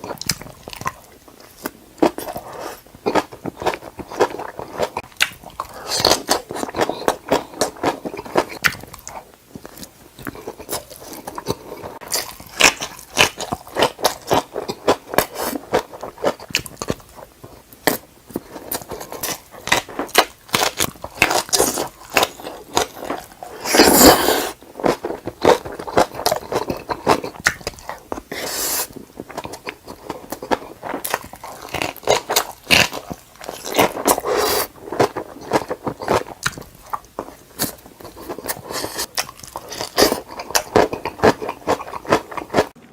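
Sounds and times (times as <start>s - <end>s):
person chewing crunchy food: 0.0s - 42.9s.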